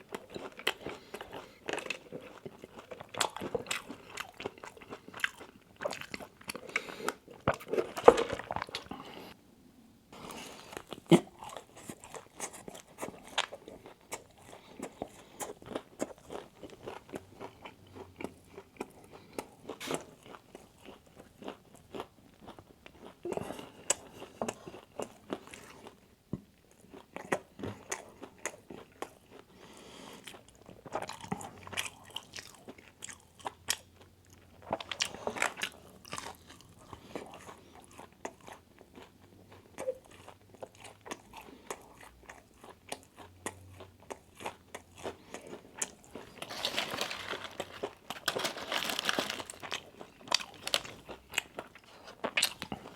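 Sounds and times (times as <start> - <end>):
crunching fried food: 0.0 - 9.0, 10.3 - 26.0, 26.6 - 52.9
chewing: 0.0 - 9.4, 10.2 - 26.0, 26.6 - 52.9.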